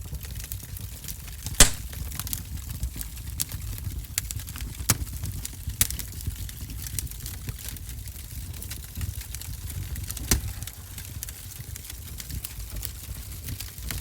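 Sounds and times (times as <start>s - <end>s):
wood fire crackling: 0.2s - 14.0s
sharp pops of fire: 1.6s - 2.3s.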